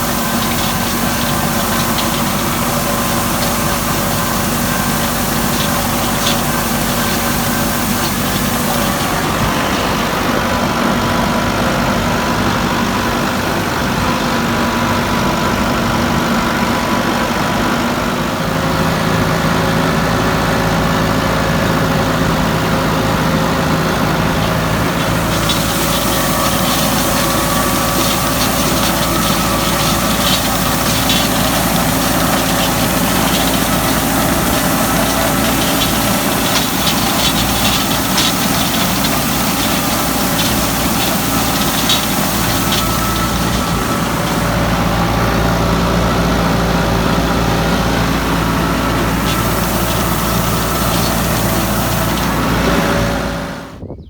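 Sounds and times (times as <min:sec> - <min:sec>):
rattling hiss: 0:00.0 - 0:10.9, 0:22.0 - 0:53.6
tractor engine running: 0:00.0 - 0:53.9.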